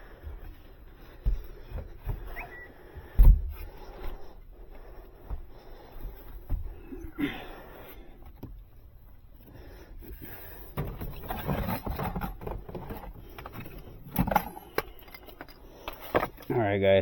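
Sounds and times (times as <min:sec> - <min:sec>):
rustling and scraping: 0:10.0 - 0:16.6.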